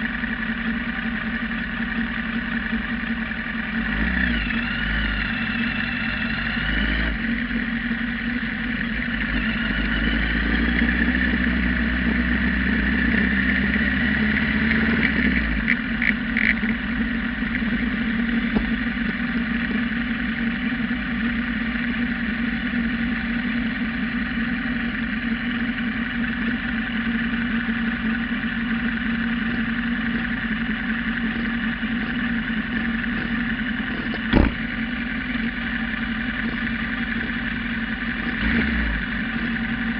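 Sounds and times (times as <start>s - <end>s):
motorcycle engine running: 0.0s - 39.9s
sharp knock: 34.3s - 34.6s.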